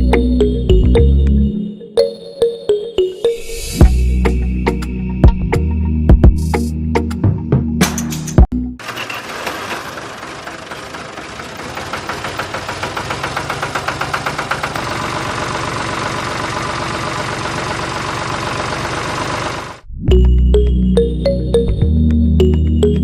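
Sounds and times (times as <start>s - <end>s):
small engine knocking: 8.8s - 19.8s.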